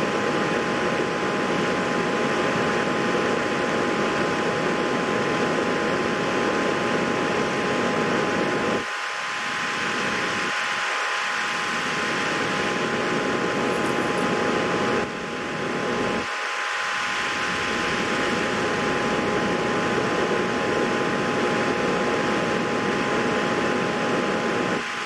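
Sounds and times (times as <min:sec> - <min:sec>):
two-tone hum: 0:07.4 - 0:25.0
fan whirring: 0:11.8 - 0:16.2, 0:17.2 - 0:24.6.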